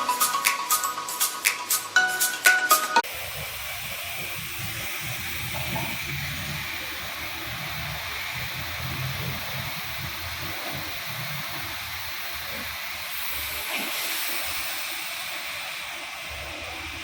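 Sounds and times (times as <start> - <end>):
mallet intro music: 0.0 - 3.1
high-pressure water jets hissing: 3.0 - 17.0.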